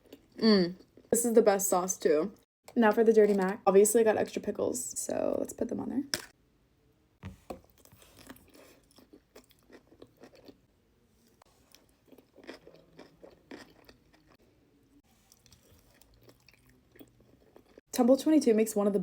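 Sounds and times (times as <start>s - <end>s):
crunching and chewing food: 0.0s - 1.1s, 7.3s - 17.9s.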